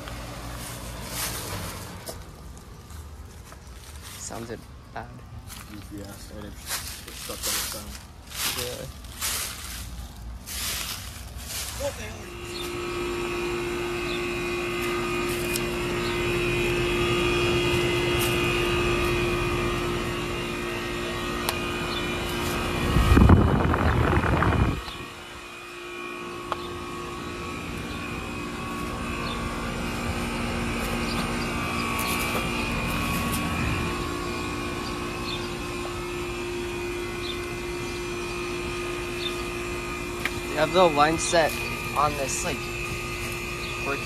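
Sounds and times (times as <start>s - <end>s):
compressor and fan hum: 0.0s - 44.0s.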